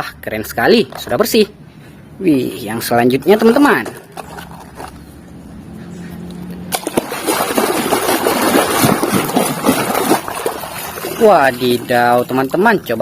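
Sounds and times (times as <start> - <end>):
water running and splashing: 6.7 - 13.0.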